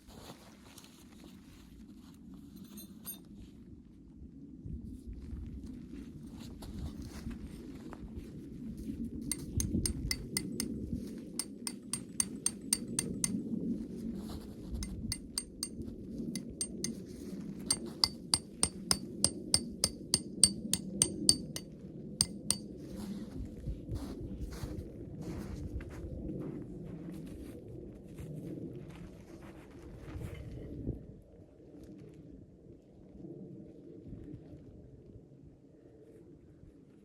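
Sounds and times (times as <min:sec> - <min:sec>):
light clinks of small hard object: 0:09.3 - 0:10.7, 0:11.4 - 0:13.4, 0:14.8 - 0:15.8, 0:16.4 - 0:17.0, 0:17.7 - 0:21.6, 0:22.2 - 0:22.6.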